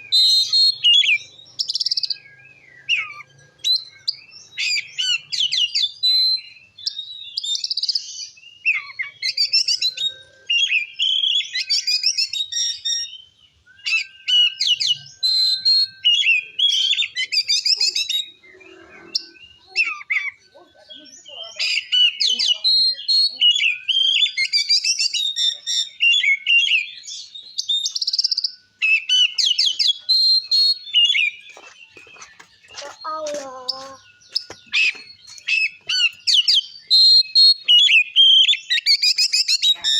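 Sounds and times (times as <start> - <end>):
magpie-robin singing: 0.0 - 39.9.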